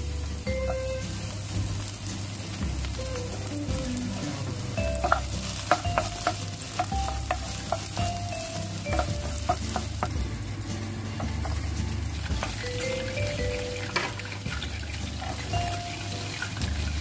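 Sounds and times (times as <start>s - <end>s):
vegetables sizzling in hot oil: 0.0s - 17.0s
spatula knocking and scraping pan: 4.8s - 17.0s.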